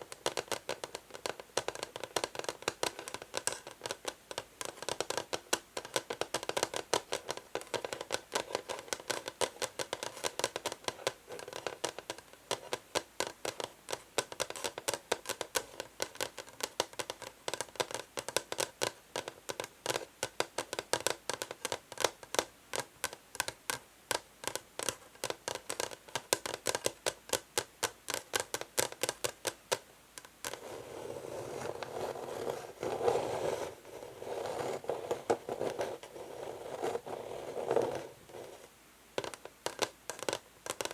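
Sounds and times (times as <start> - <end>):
nails scratching on wood: 30.4 - 40.9
fingernails tapping on wood: 39.2 - 40.9.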